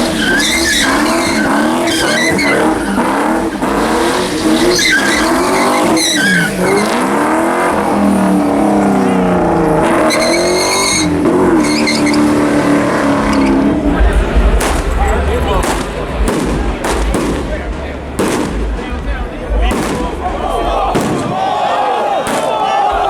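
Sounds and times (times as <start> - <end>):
high tyre squeal: 0.0 - 15.9
car engine revving: 0.0 - 21.4
tyres skidding on pavement: 0.0 - 23.0.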